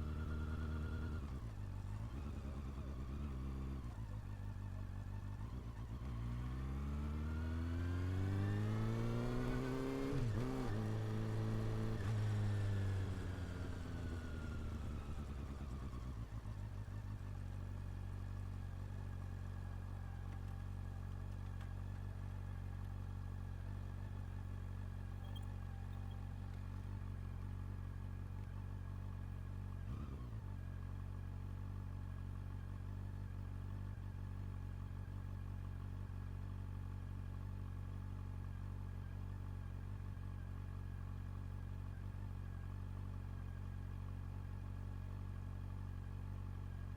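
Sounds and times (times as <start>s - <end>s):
motorcycle engine idling: 0.0s - 6.4s, 11.1s - 46.9s
engine throttle blip: 25.2s - 26.2s.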